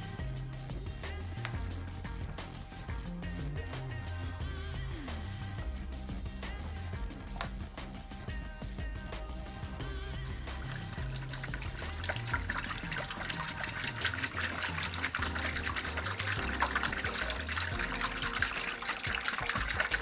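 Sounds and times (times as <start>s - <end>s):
background music with bass: 0.0s - 20.0s
water running from a tap: 10.2s - 20.0s.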